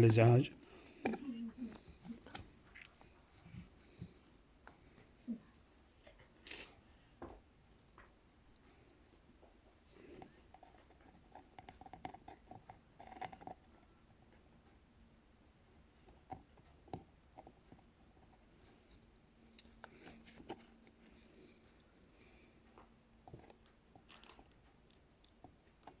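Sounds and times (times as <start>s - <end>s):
small tools clicking and tapping: 22.7s - 26.0s.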